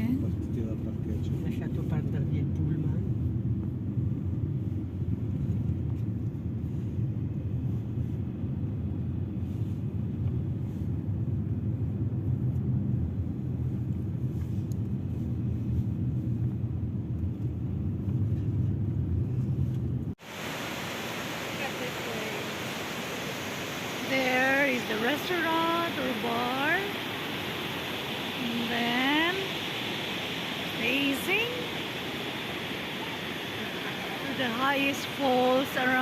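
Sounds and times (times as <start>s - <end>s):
waterfall rushing hiss: 20.2s - 36.0s.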